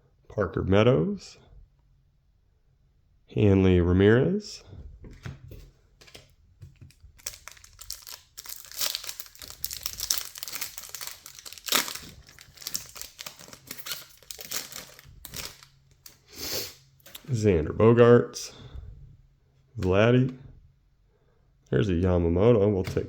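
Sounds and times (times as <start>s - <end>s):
trading cards rustling and crinkling: 5.2s - 17.4s.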